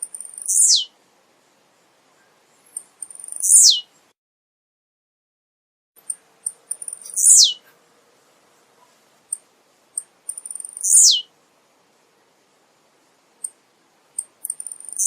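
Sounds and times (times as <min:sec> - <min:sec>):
bird singing with downward sweeping note: 0:00.5 - 0:00.9, 0:03.4 - 0:03.8, 0:07.0 - 0:07.6, 0:10.8 - 0:11.3.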